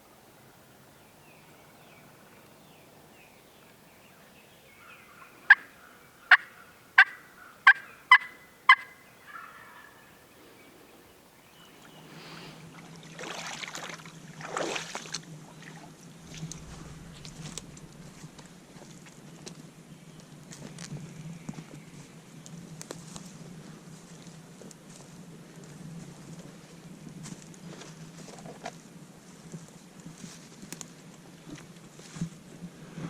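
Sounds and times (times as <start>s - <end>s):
wild turkey calling: 4.7s - 10.3s
rough rustling noise: 16.0s - 22.1s.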